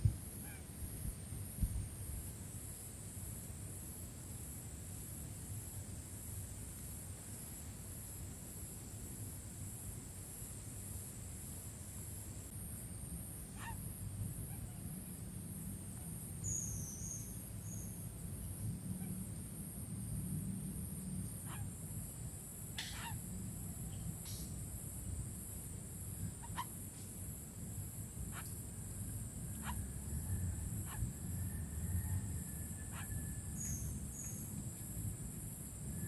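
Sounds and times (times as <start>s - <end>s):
short sharp bird calls: 22.8s - 23.2s.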